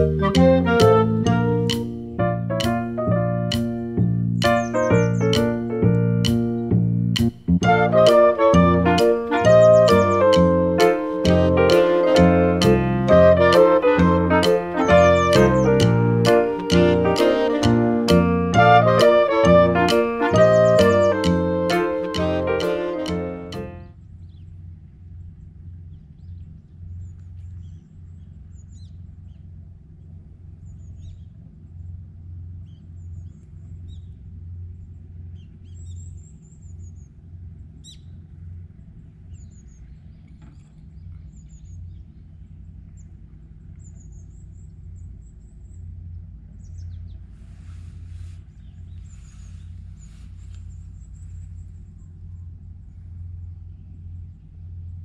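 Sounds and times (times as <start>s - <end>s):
steady low rumble: 0.0s - 21.9s, 23.2s - 55.0s
small birds chirping: 3.5s - 6.8s, 9.1s - 11.4s, 14.0s - 17.1s, 46.5s - 54.5s
rustling: 47.3s - 51.6s.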